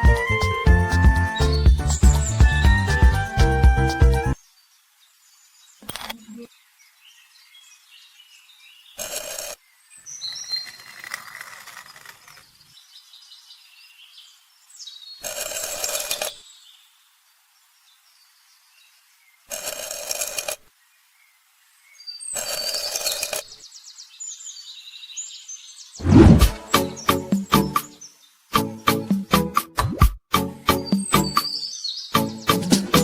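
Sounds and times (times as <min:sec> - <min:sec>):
birds chirping: 0:01.2 - 0:04.4, 0:21.8 - 0:28.3, 0:30.7 - 0:33.0.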